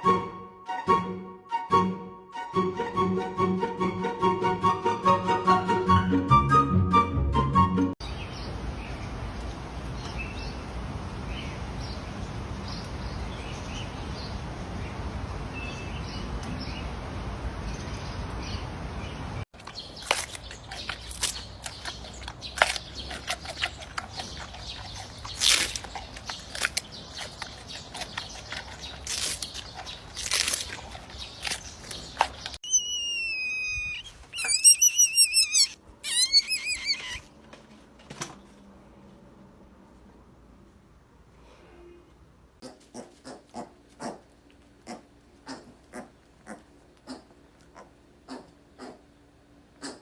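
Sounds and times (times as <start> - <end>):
high squeaks and clicks: 19.6 - 37.3.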